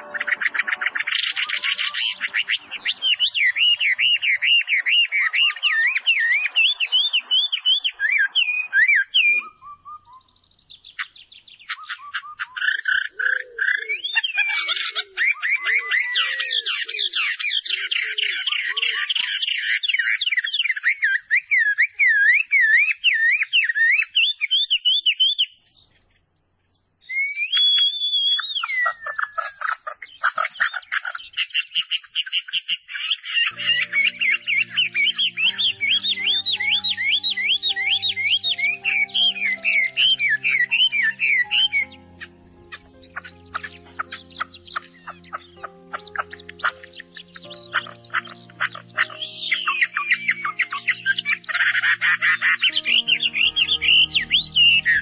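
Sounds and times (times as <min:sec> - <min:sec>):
lower bird call: 0:00.0 - 0:20.1, 0:33.4 - 0:55.0
songbirds warbling and trilling: 0:00.0 - 0:55.0.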